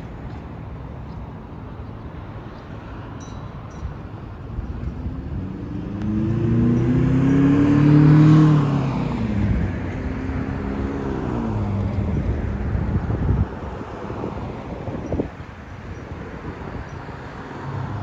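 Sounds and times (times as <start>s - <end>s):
vehicle driving past: 5.0s - 13.0s.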